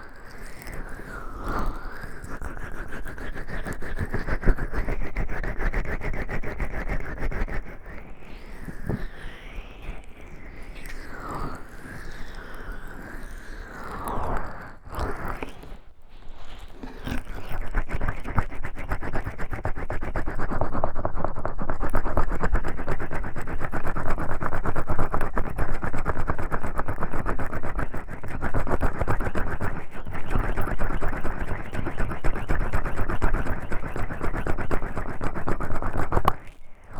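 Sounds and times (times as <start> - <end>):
oiled hands rubbing microphone: 26.0 - 36.7.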